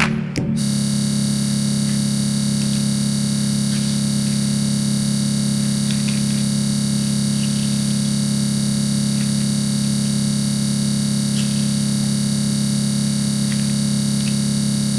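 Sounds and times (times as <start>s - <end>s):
faint ticks: 5.7s - 7.8s, 9.1s - 9.5s, 11.3s - 11.9s, 13.3s - 14.6s.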